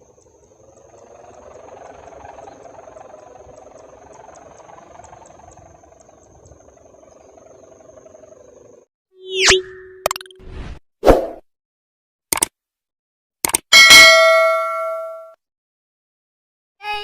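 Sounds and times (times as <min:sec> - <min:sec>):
hummer bow kite droning: 0:00.0 - 0:08.8
wind rumble: 0:00.0 - 0:08.8.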